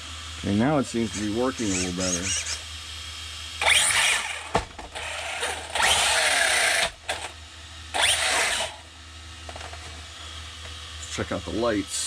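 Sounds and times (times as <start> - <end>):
electric motor whirring: 0.5 - 2.7, 3.6 - 8.9.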